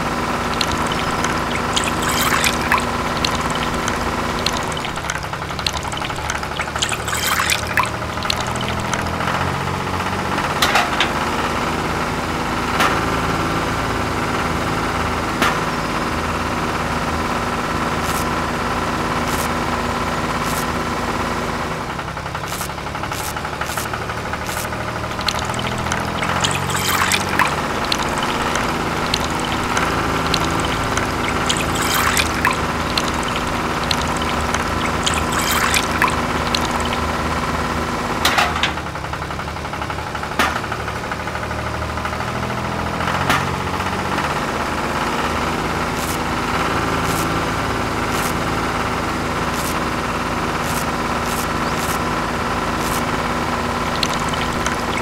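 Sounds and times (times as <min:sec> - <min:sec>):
liquid trickling: 0:00.0 - 0:09.3, 0:22.4 - 0:37.3, 0:53.8 - 0:55.0.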